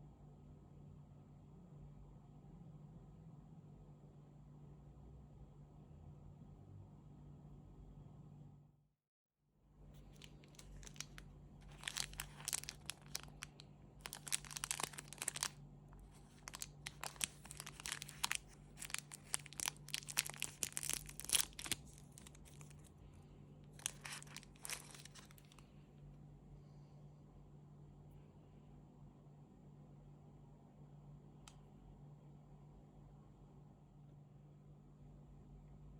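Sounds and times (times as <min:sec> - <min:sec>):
wrapper crackling and crinkling: 0:09.9 - 0:23.0, 0:23.7 - 0:25.7.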